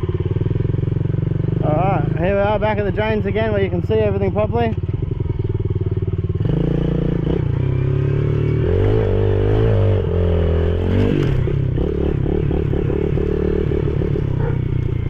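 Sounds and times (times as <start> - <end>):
small motorbike engine revving: 4.9 - 15.0.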